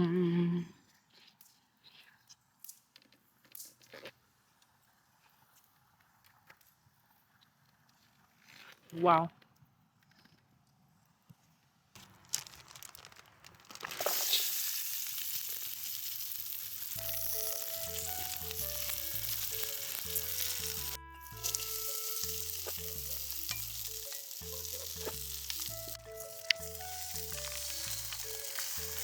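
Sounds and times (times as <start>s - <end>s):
food sizzling: 13.7s - 29.0s
background music with bass line: 17.0s - 29.0s.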